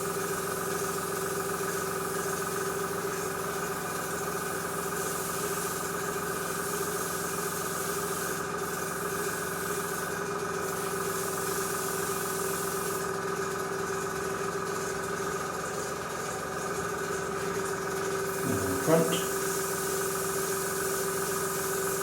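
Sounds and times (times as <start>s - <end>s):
airbrush spraying hiss: 7.6s - 10.1s, 18.3s - 22.0s
compressor humming: 18.3s - 19.6s.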